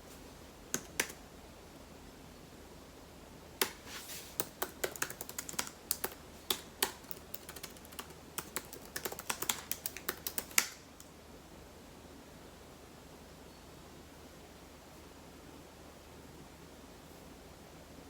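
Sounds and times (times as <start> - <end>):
sharp clicks and taps: 0.7 - 1.2, 3.6 - 11.1.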